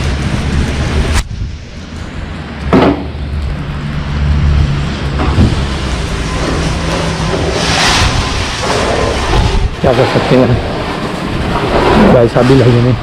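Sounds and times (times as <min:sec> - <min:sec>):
loud hissing rush: 0:00.0 - 0:13.0
vehicle engine hum: 0:00.0 - 0:13.0.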